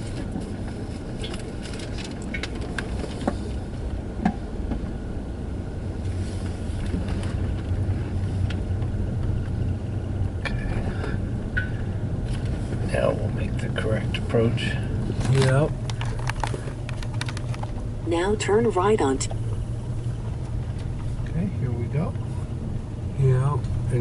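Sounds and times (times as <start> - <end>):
road and tyre rumble in car: 0.0 - 24.0.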